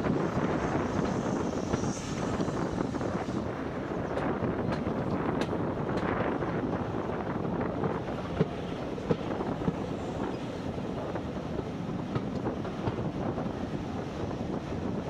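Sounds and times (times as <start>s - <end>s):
train carriage rumbling on track: 0.0s - 15.0s
wind buffeting microphone: 0.0s - 15.0s.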